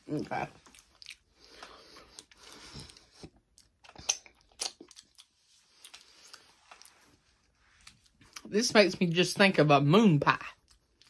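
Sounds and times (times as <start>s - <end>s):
chewing crunchy snack: 0.5s - 7.2s.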